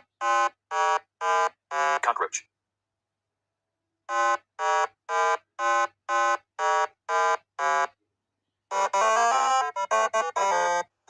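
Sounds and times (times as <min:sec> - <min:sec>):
chiptune notes: 0:08.7 - 0:10.9.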